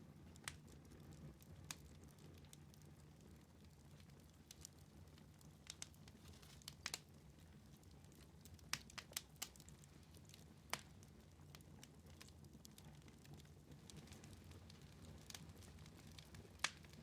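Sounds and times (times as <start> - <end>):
fire snaps and pops: 0.0 - 17.0
wood fire crackling: 0.0 - 17.0.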